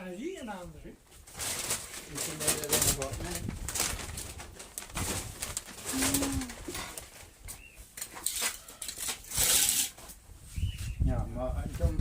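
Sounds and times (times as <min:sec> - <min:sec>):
rustling noise: 0:01.1 - 0:12.0
pigeon cooing: 0:05.8 - 0:06.8.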